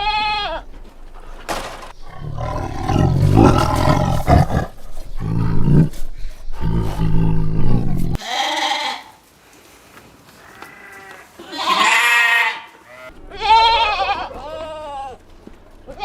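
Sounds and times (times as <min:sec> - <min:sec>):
goat bleating: 0:00.0 - 0:00.7, 0:06.6 - 0:09.2, 0:10.4 - 0:16.0
deep animal roar: 0:02.0 - 0:08.2.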